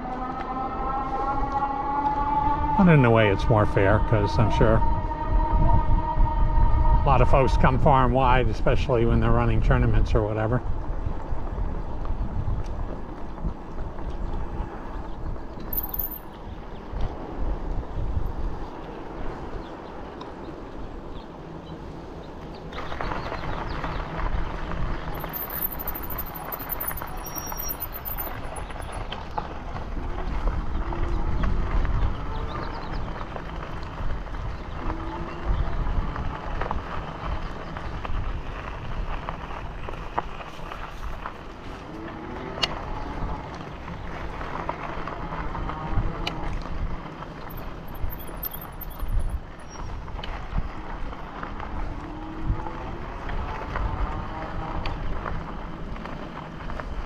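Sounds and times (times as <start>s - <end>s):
wind buffeting microphone: 1.3s - 15.6s, 28.3s - 44.5s
bicycle riding on paved path: 10.6s - 57.0s.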